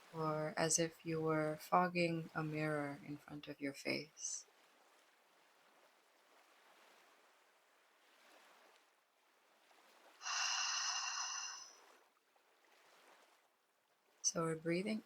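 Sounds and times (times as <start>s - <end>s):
person sighing exhale: 10.2s - 11.7s
faint breathing hiss: 10.2s - 11.9s.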